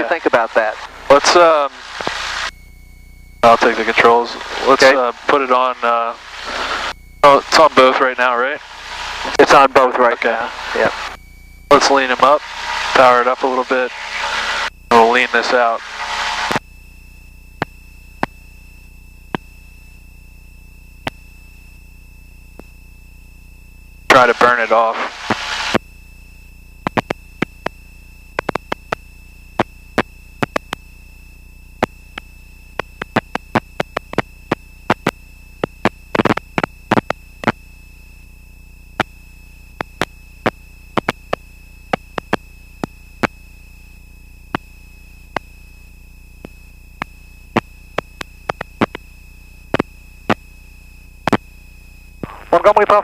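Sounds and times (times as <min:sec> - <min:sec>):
electrical hiss and hum: 0:00.0 - 0:53.0
sharp clicks and pops: 0:01.9 - 0:02.4, 0:17.6 - 0:18.4, 0:21.0 - 0:21.2, 0:26.8 - 0:27.8, 0:28.4 - 0:30.9, 0:31.8 - 0:37.6, 0:39.0 - 0:39.2, 0:39.8 - 0:43.4, 0:45.3 - 0:45.6, 0:46.4 - 0:49.1, 0:49.7 - 0:50.5, 0:51.2 - 0:51.5.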